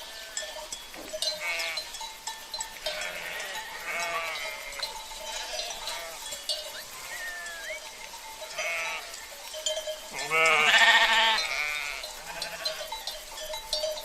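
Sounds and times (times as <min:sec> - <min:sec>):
cowbells clinking: 0:00.0 - 0:14.0
sheep bleating: 0:01.4 - 0:01.8, 0:02.9 - 0:07.9, 0:08.5 - 0:09.2, 0:10.1 - 0:12.9.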